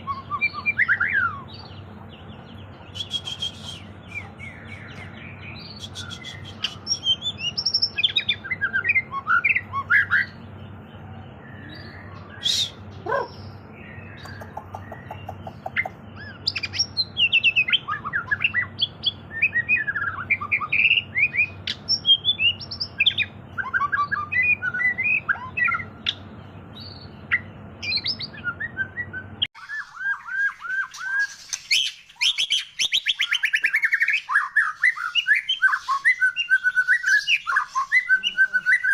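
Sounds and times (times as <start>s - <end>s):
steady low hum: 0.0s - 29.5s
songbird singing varied song: 0.0s - 38.9s.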